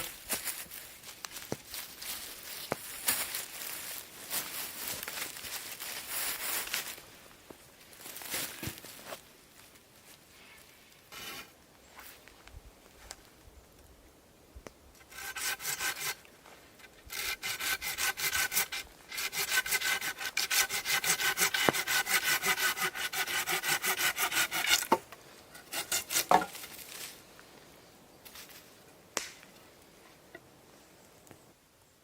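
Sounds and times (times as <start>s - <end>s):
hand saw cutting wood: 15.0s - 16.2s, 16.9s - 26.6s.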